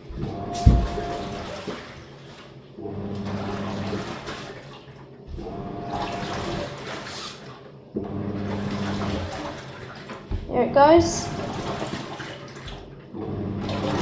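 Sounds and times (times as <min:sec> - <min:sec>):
water sloshing: 0:00.0 - 0:02.6, 0:08.4 - 0:13.1
washing machine motor hum: 0:00.0 - 0:14.0.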